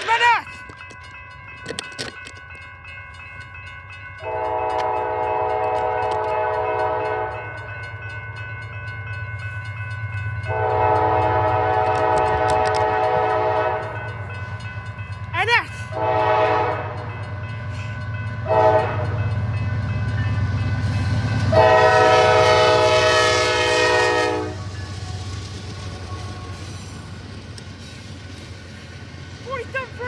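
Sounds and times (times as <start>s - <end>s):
crossing warning bell ringing: 0.0s - 30.0s
locomotive horn blasts: 4.2s - 7.6s, 10.4s - 14.1s, 15.9s - 17.1s, 18.4s - 19.3s, 21.4s - 25.2s.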